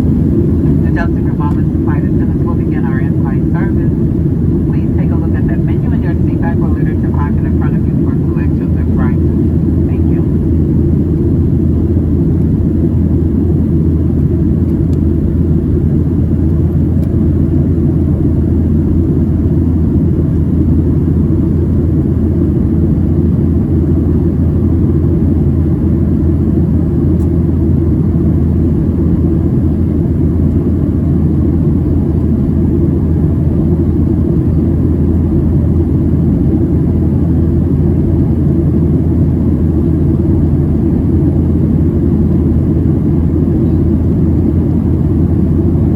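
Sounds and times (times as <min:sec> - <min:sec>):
airflow noise: 0:00.0 - 0:10.5
airliner cabin engine rumble: 0:00.0 - 0:45.9.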